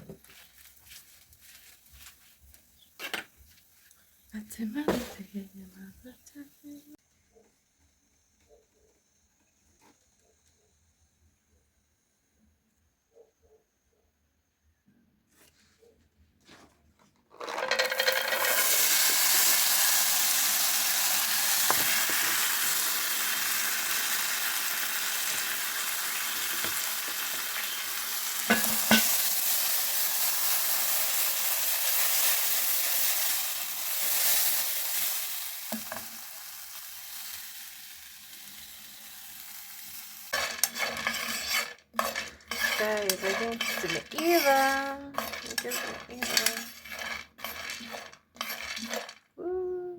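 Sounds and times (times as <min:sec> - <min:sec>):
peanuts sizzling in a hot pan: 0:17.3 - 0:49.2.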